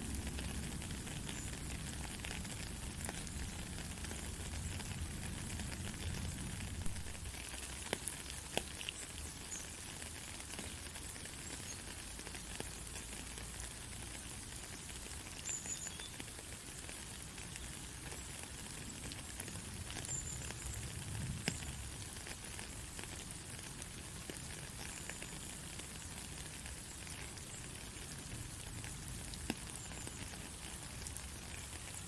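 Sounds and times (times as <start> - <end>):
sharp drip ticks: 7.2 - 32.0.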